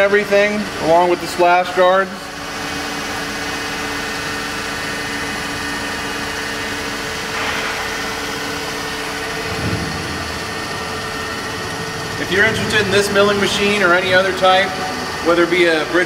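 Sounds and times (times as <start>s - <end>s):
milling machine humming and whining: 0.0s - 16.0s
low rumble: 7.3s - 14.7s.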